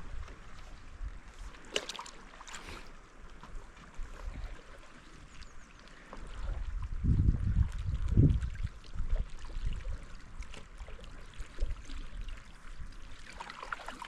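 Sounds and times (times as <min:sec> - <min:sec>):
paddle splashing in water: 0:00.0 - 0:14.0
wind buffeting microphone: 0:06.4 - 0:10.4.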